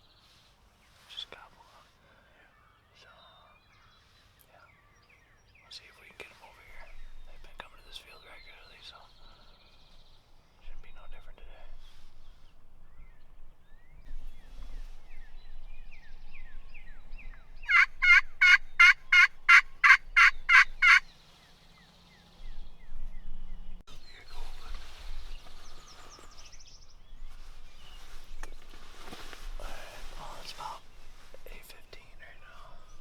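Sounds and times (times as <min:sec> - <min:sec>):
turkey yelps: 0:17.6 - 0:21.1.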